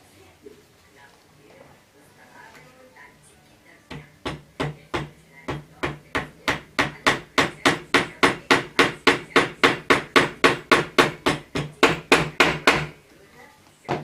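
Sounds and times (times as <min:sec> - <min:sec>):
hammer tapping: 0:03.9 - 0:13.0.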